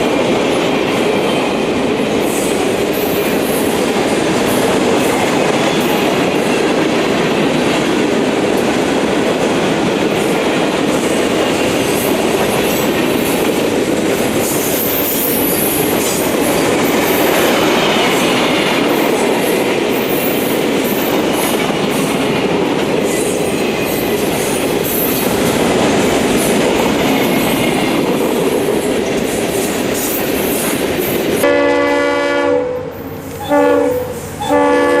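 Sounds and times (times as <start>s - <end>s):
freight train rattling past: 0.0s - 35.0s
locomotive air horn: 31.4s - 35.0s.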